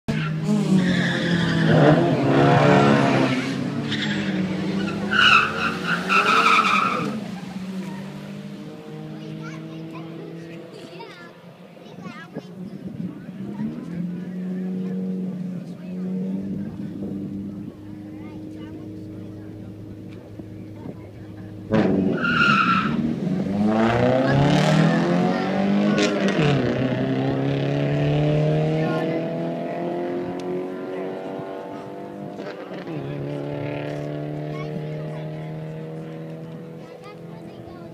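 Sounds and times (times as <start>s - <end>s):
tire squeal: 0.1s - 8.0s, 21.8s - 23.1s
car engine idling and revving: 0.1s - 37.9s.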